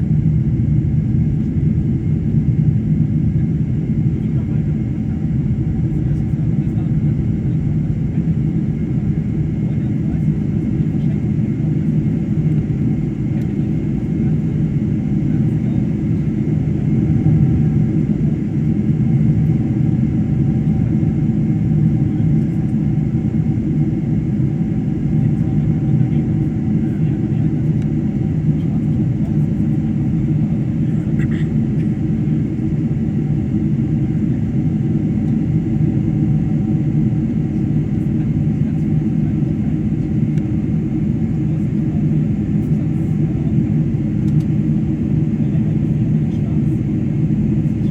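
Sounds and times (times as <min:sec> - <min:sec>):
airliner cabin engine drone: 0:00.0 - 0:47.9
faint tick: 0:44.2 - 0:44.5.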